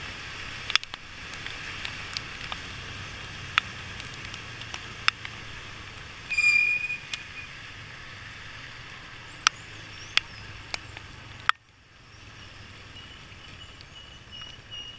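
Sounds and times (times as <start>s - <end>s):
motorcycle road and engine noise: 0.0s - 14.9s
short high squeal: 6.3s - 7.6s.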